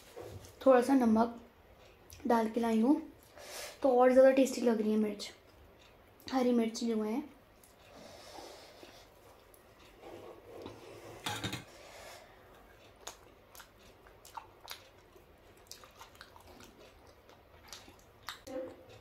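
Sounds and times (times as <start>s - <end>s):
person chewing food: 12.2s - 19.0s
wet mouth clicks: 12.9s - 18.6s.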